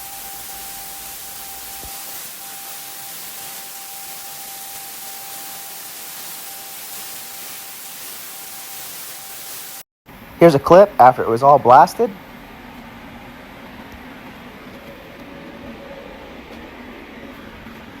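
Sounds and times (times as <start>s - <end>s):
thin steady whistle: 0.0s - 8.8s
blasting nozzle hissing: 0.0s - 9.9s.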